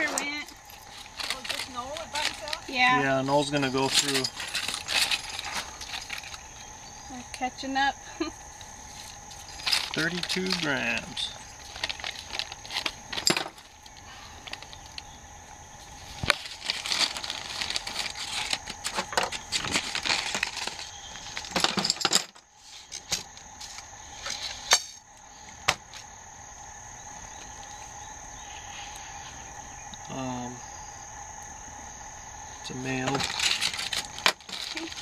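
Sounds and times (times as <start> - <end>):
rustling and crinkling: 0.0 - 6.8, 8.4 - 15.1, 15.8 - 26.1, 33.0 - 35.0
high insect trill: 0.0 - 35.0.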